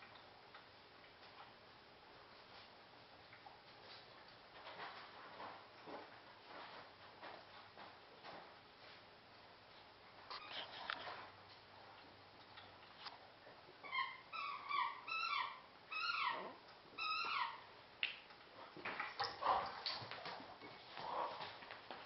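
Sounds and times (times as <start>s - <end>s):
pet making high cries: 13.8s - 17.7s.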